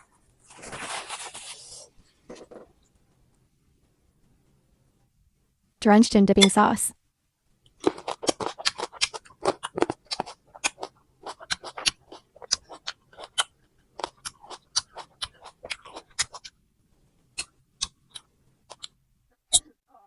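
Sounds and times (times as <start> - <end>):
crunchy fruit chewing: 7.7 - 16.6.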